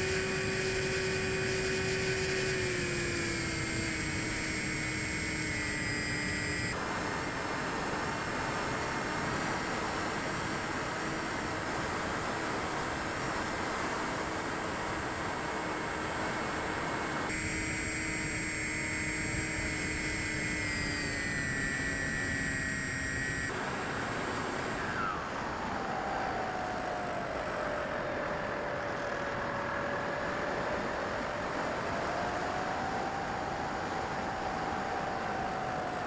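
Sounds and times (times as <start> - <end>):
model plane motor whining: 0.0 - 6.8, 15.6 - 31.7.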